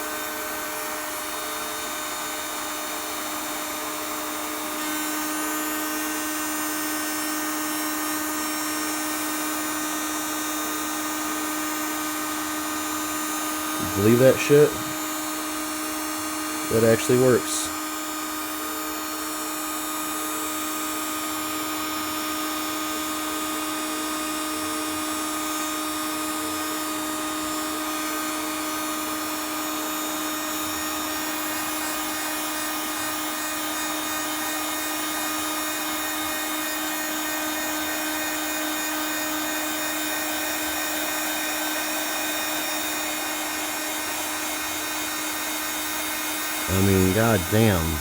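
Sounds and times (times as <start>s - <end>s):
heat gun blowing air: 3.4s - 7.4s.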